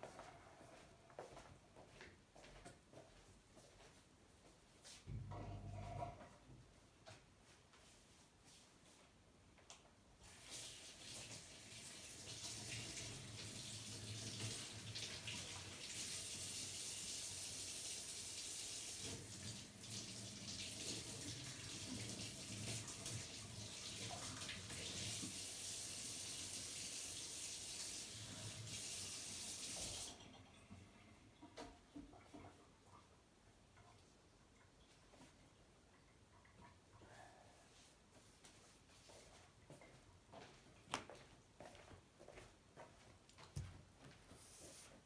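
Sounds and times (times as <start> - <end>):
water running: 10.2 - 32.1.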